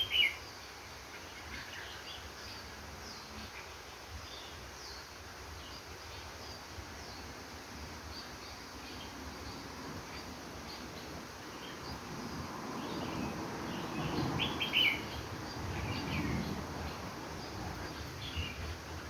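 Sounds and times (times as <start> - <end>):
low rumbling background noise: 0.0 - 19.0
bird chirping: 8.0 - 19.0.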